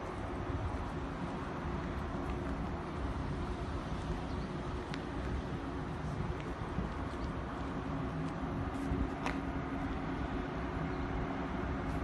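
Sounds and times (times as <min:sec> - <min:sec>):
moving train rumble: 0:00.0 - 0:12.0.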